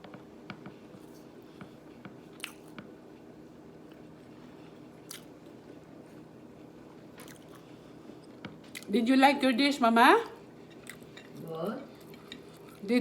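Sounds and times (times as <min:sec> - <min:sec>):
faint steady hum: 0:00.0 - 0:13.0
person chewing with wet mouth sounds: 0:02.3 - 0:02.8, 0:03.9 - 0:05.6, 0:07.0 - 0:08.9, 0:10.7 - 0:12.8.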